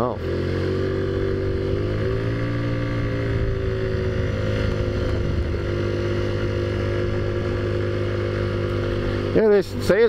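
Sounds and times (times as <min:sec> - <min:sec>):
scooter engine running: 0:00.0 - 0:10.0.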